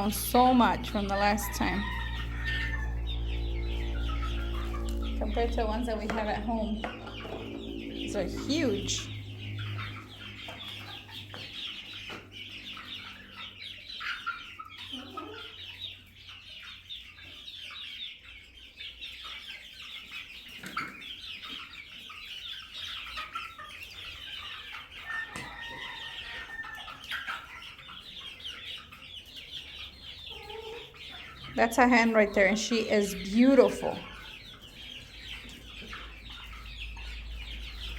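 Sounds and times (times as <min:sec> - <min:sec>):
drawn-out hen call: 0:00.0 - 0:12.1, 0:23.1 - 0:37.9
hens and chicks clucking: 0:00.0 - 0:37.9.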